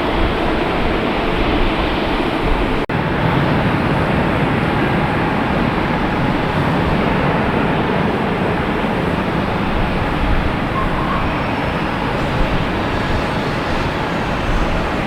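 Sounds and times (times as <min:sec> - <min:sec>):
jet engines roaring: 0:00.0 - 0:15.0
high whine falling in pitch: 0:10.6 - 0:15.0.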